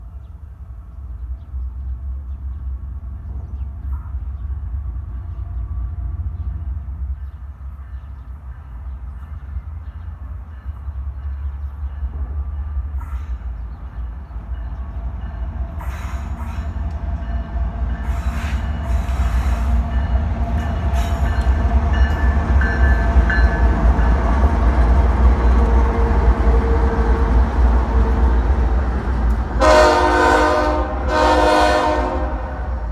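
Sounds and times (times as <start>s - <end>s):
diesel locomotive engine rumble: 0.0s - 32.9s
locomotive air horn chord: 29.6s - 32.8s.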